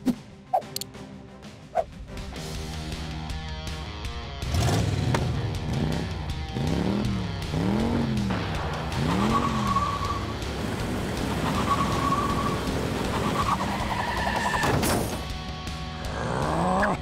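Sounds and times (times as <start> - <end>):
motorbike engine revving: 4.4 - 13.3.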